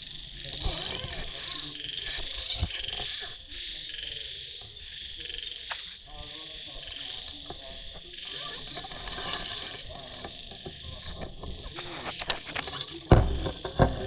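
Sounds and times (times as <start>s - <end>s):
animal calls: 0.0s - 14.0s
insect trilling: 0.0s - 14.0s
loud knock: 13.1s - 14.0s.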